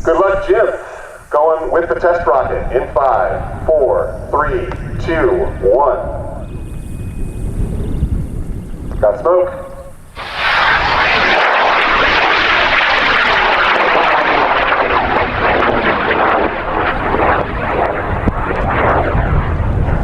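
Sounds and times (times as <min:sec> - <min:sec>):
rocket motor roaring: 0:10.0 - 0:20.0.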